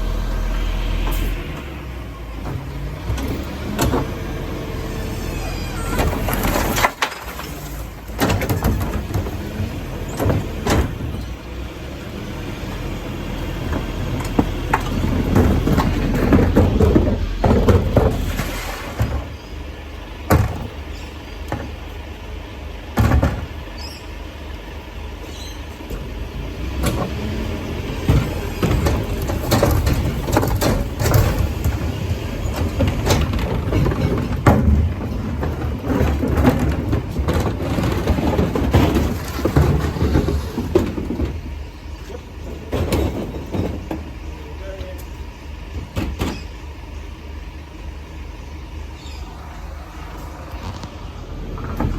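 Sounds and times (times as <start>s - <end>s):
garbage truck engine rumbling: 0.0s - 51.9s
sharp bangs and clunks: 13.6s - 19.5s, 28.0s - 41.6s.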